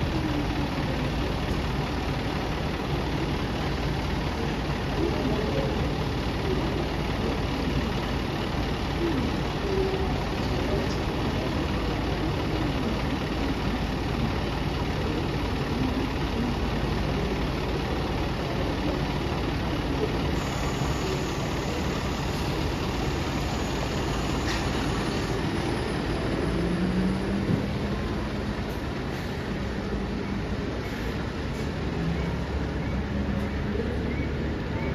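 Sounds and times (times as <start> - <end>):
bus engine idling: 0.0 - 34.9.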